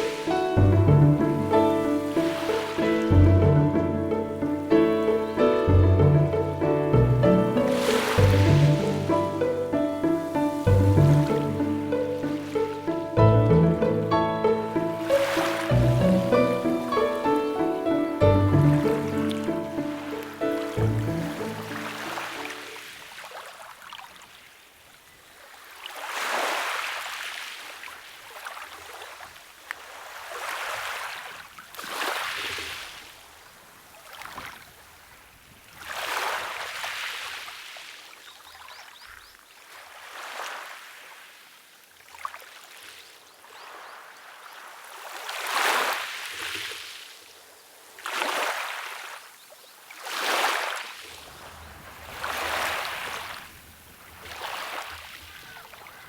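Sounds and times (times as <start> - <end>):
small waves washing in: 0.0 - 56.0.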